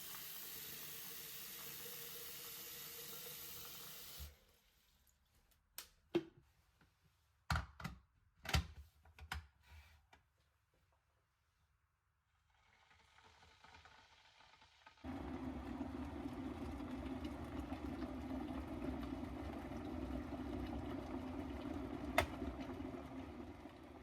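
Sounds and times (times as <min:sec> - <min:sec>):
water heating in kettle: 0:00.0 - 0:05.2, 0:12.4 - 0:24.0
kettle switch click: 0:22.2 - 0:22.4.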